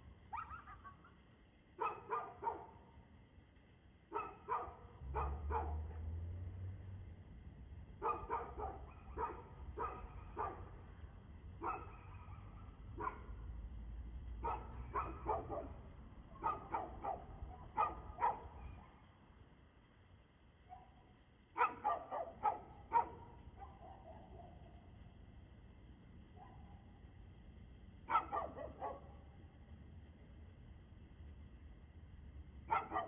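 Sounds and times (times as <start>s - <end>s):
dog barking: 0.3s - 1.2s, 1.8s - 2.8s, 4.1s - 6.1s, 8.0s - 10.8s, 11.6s - 13.5s, 14.4s - 19.1s, 20.7s - 21.0s, 21.6s - 24.8s, 26.4s - 26.9s, 28.1s - 29.3s, 32.7s - 33.0s.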